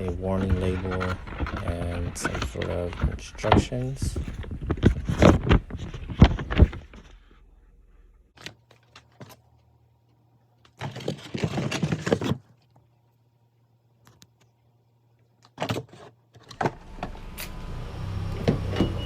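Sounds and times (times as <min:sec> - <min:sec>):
knocks and clicks of handling: 0:00.0 - 0:07.3.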